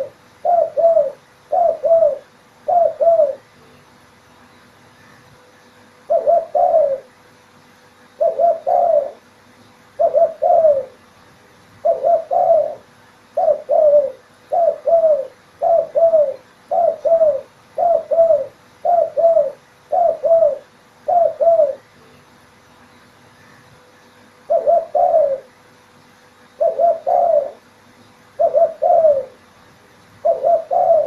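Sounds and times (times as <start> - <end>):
dove cooing: 0.0 - 3.6, 6.0 - 7.2, 8.1 - 9.3, 9.9 - 11.0, 11.8 - 22.0, 24.4 - 25.6, 26.5 - 29.5, 30.2 - 31.0.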